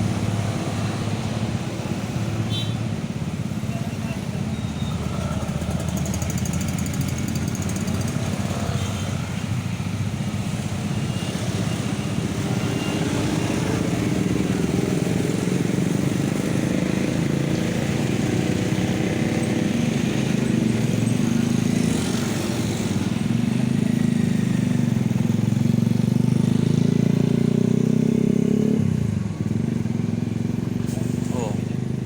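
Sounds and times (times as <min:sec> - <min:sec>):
heavy vehicle engine humming: 0:28.8 - 0:32.0.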